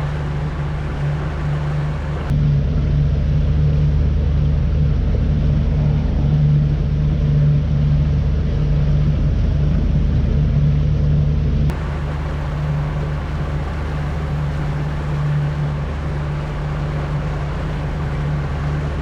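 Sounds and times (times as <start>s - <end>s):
boat motor droning: 0.0s - 2.3s, 11.7s - 19.0s.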